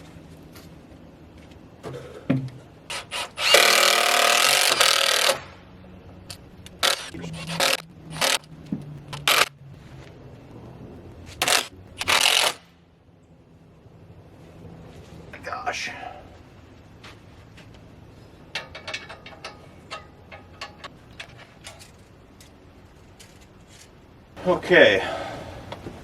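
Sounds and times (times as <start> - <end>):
power drill driving screws: 2.9 - 5.4.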